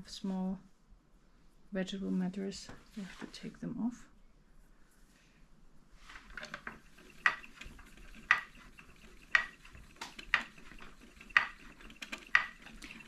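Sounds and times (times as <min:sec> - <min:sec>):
spinning wheel clicking and ticking: 0:06.3 - 0:13.0.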